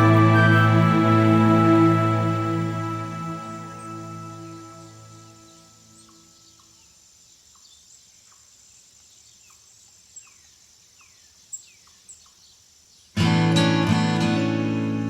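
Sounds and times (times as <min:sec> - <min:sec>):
birds chirping faintly: 0:00.0 - 0:13.2
sharp high bird chirps: 0:01.6 - 0:08.5.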